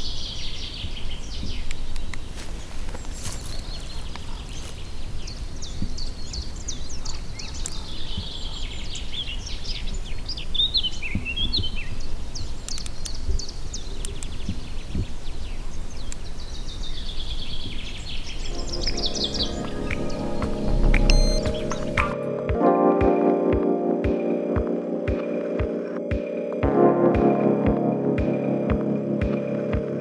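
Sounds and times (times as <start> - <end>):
small birds singing: 0.0 - 22.1
sharp clicks: 12.6 - 13.2, 19.9 - 22.2.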